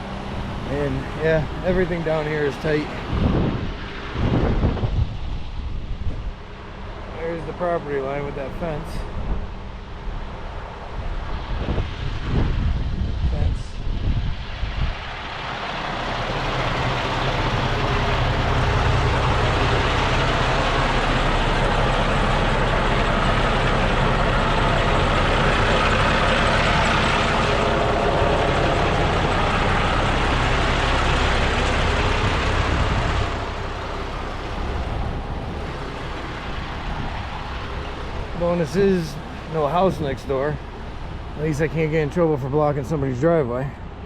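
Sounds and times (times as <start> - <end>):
truck diesel engine running: 0.0 - 4.8, 14.9 - 44.0
dense rushing noise: 0.0 - 44.0.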